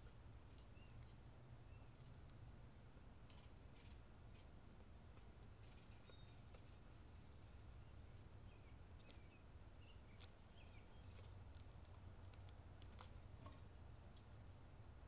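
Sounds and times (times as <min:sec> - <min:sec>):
low steady hum: 0:00.0 - 0:15.0
birds chirping: 0:00.4 - 0:02.2, 0:05.6 - 0:12.4
faint clicks and taps: 0:11.1 - 0:14.3.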